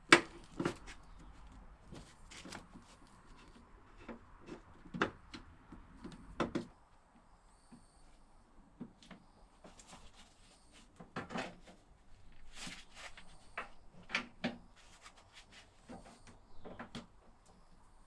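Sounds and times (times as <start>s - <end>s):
objects knocking and scraping: 0.1s - 6.7s.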